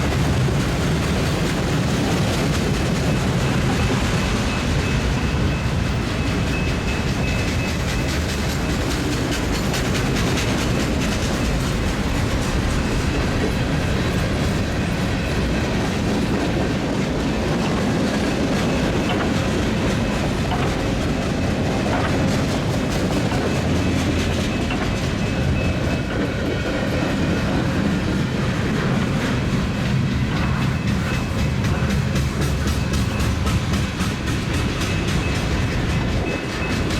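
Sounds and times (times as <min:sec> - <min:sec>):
train wheels clicking over rails: 0:00.0 - 0:36.9.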